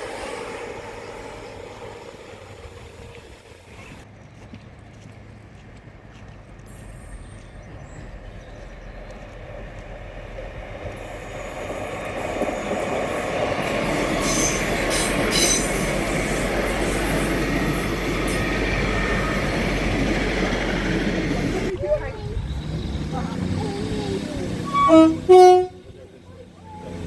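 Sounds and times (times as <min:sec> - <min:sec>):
train passing: 0:00.0 - 0:27.0
high wheel squeal: 0:10.9 - 0:27.0.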